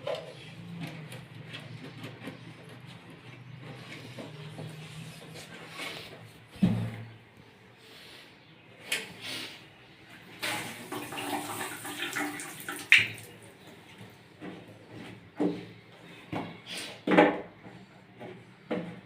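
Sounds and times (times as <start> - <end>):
water running in toilet tank: 10.4 - 13.4.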